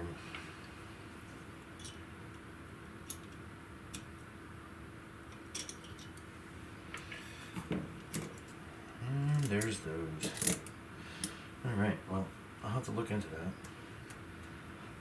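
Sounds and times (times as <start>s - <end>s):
faint steady hum: 0.0s - 15.0s
small metal parts clicking: 5.3s - 6.2s, 9.3s - 11.4s.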